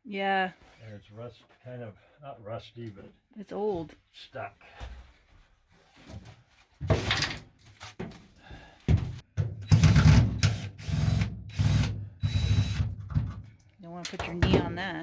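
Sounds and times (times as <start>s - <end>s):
power drill running: 9.7s - 12.8s.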